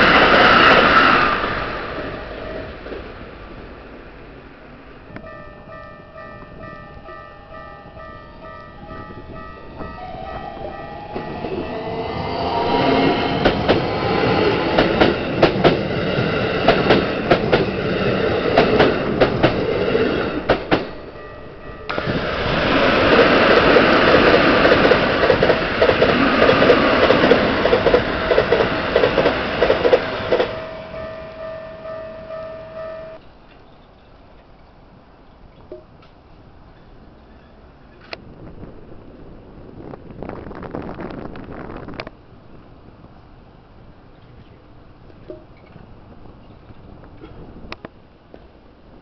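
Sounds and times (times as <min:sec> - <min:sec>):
level-crossing warning bell: 0:01.8 - 0:03.0, 0:05.1 - 0:12.0, 0:20.4 - 0:22.2, 0:23.0 - 0:33.2
train wheels clacking over rail joints: 0:21.9 - 0:30.6.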